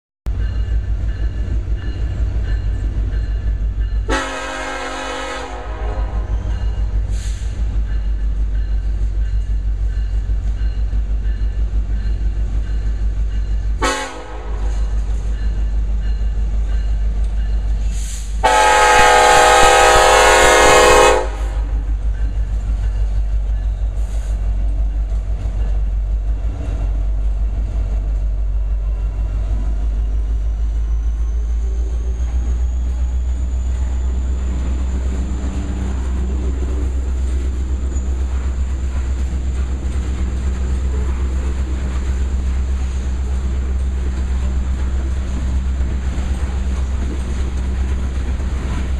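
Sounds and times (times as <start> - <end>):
diesel locomotive engine rumble: 0.3 - 48.9
hopper cars rolling on rails: 0.3 - 48.9
train horn: 4.0 - 7.5, 13.8 - 15.2, 18.0 - 21.9.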